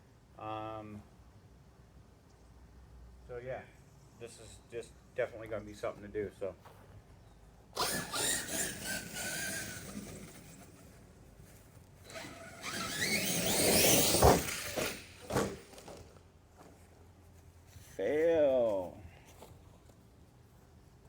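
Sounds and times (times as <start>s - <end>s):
electric motor whining: 7.8s - 10.9s, 12.1s - 16.0s.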